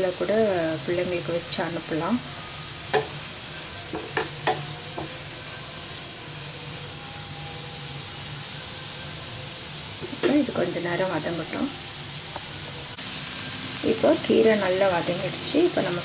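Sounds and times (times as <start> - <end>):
vegetables sizzling in a pan: 0.0 - 16.0
wooden spatula knocking on pan: 2.9 - 3.2, 3.9 - 5.2.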